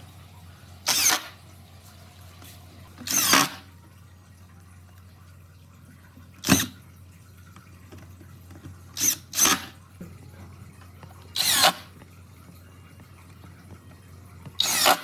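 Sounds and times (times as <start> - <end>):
power drill bursts: 0.8 - 1.4, 3.0 - 3.6, 9.0 - 9.7, 11.4 - 11.8, 14.6 - 15.0.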